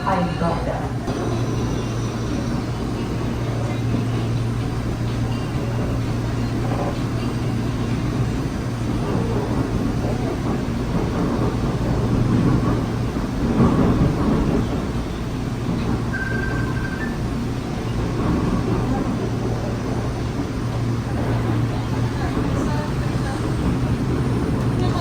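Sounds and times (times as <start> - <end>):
train interior hum: 0.0 - 25.0
wheels rumbling on rails: 0.0 - 25.0
thin high whine: 16.1 - 17.4.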